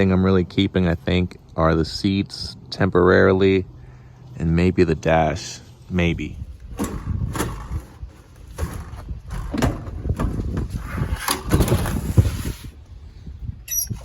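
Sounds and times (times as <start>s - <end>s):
scraping and rustling: 6.7s - 12.8s.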